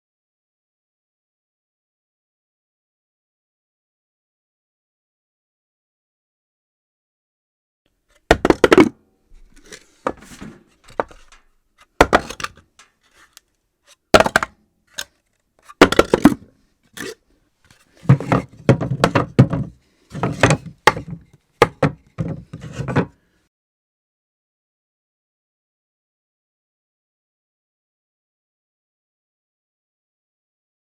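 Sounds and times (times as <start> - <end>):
objects clattering onto floor: 8.3 - 13.0.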